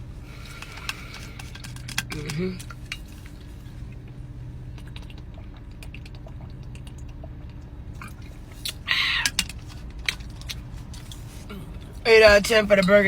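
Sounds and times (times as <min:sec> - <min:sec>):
person chewing food: 0:00.2 - 0:12.0
wet mouth clicks: 0:04.8 - 0:09.5.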